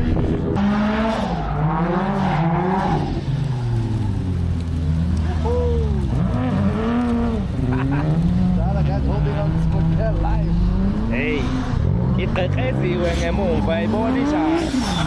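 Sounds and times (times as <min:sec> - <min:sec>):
go-kart engines revving: 0:00.3 - 0:15.0
tyre squeal: 0:13.0 - 0:15.0.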